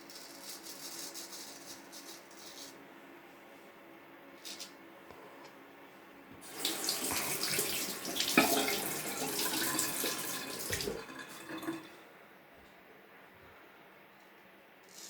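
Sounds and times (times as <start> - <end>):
tap water running into sink: 6.4 - 12.0.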